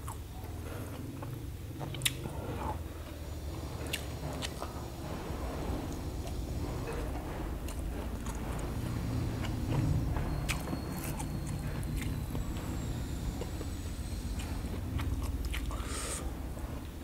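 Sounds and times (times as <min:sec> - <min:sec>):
chewing and biting meat: 0:00.9 - 0:02.8, 0:09.0 - 0:16.0.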